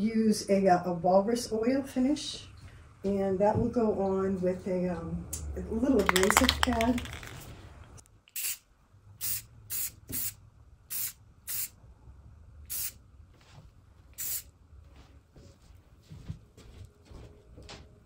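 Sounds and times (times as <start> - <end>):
short hissing sprays: 8.4 - 8.6, 9.2 - 11.7, 12.7 - 13.0, 14.2 - 14.5.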